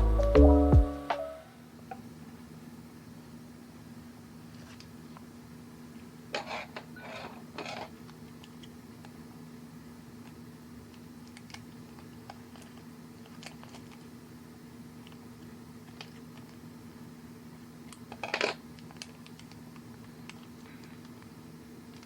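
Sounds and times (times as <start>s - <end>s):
steady low hum: 0.0s - 1.1s
small clicks and handling noises: 4.5s - 5.3s, 7.2s - 9.2s, 10.2s - 14.1s, 15.0s - 16.6s, 17.8s - 22.0s.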